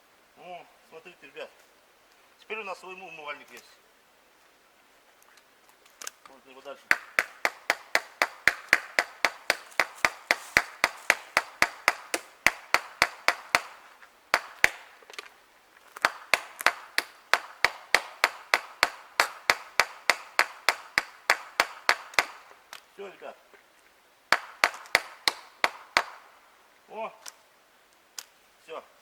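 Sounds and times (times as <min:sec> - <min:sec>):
hammer striking nail into wood: 0:06.9 - 0:14.8, 0:16.0 - 0:22.4, 0:24.3 - 0:26.2.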